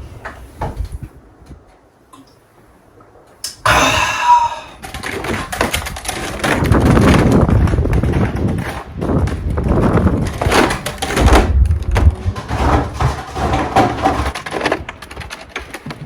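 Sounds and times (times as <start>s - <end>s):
wind buffeting microphone: 0.0s - 16.0s
clicks and knocks: 4.8s - 16.0s.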